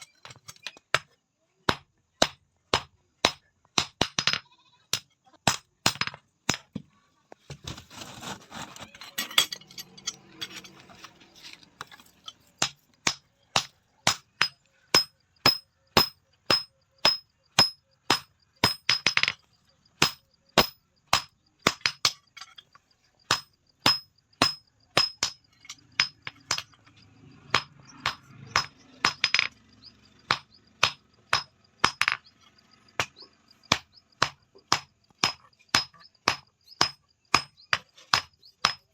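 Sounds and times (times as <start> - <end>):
hammer striking steel on anvil: 12.6 - 19.3, 23.3 - 26.8.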